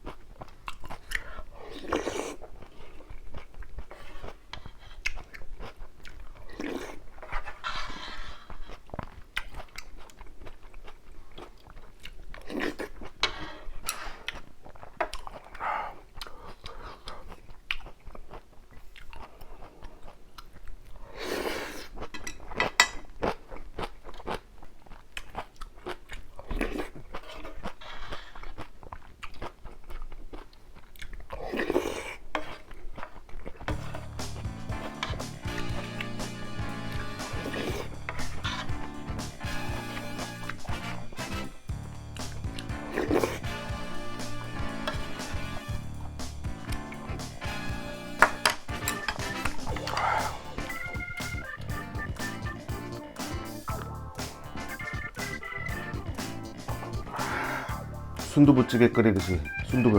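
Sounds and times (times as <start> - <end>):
chewing and crunching food: 0.0 - 59.9
mouth clicks: 33.7 - 59.9.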